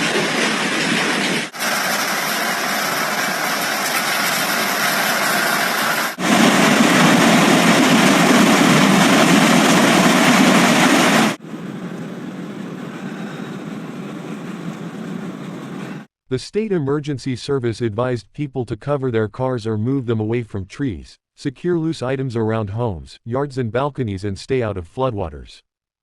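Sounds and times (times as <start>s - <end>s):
hail and heavy rain pelting: 0.0s - 11.4s.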